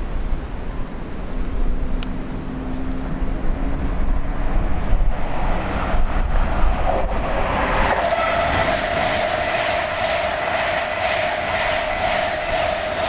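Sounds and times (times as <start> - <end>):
approaching train: 0.0 - 13.0
wind buffeting microphone: 3.0 - 13.0.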